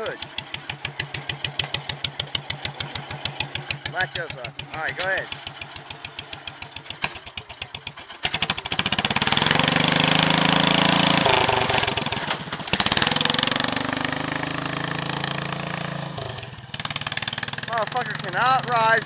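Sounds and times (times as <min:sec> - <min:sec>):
tractor engine revving: 0:00.0 - 0:19.0.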